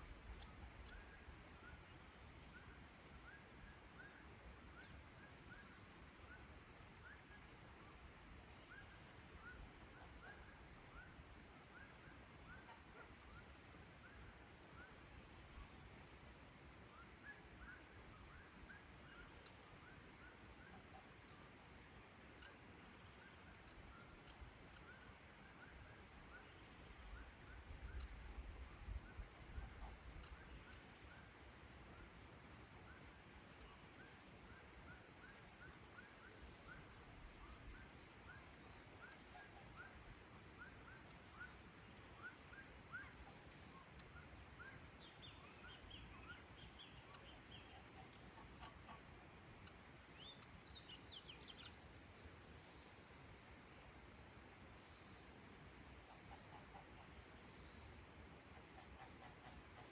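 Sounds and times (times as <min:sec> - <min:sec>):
bird chirping calls: 0:00.0 - 0:00.9
high insect hum: 0:00.0 - 0:59.9.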